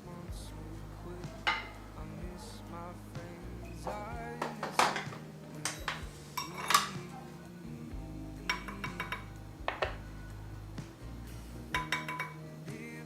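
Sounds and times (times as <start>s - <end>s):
soft background music: 0.0s - 13.0s
dishes and utensils clinking: 1.3s - 1.9s, 3.8s - 7.4s, 8.4s - 10.1s, 11.7s - 12.5s.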